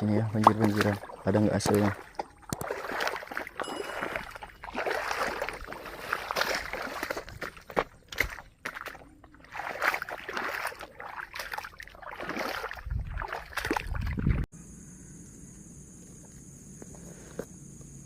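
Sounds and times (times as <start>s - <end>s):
floodwater sloshing and rushing: 0.0s - 14.5s.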